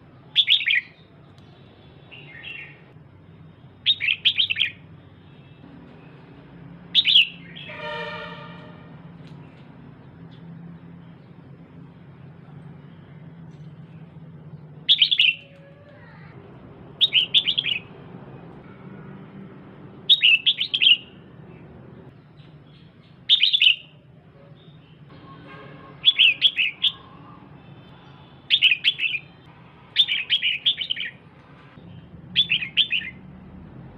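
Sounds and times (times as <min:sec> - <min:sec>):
bird chattering calls: 0:14.9 - 0:16.3, 0:17.0 - 0:17.9.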